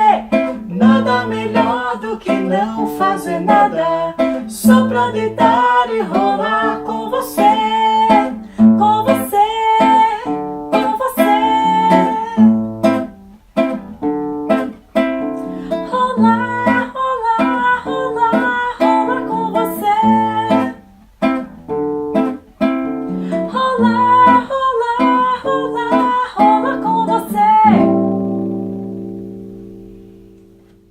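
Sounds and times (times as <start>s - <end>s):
acoustic guitar strumming: 0.0s - 30.9s.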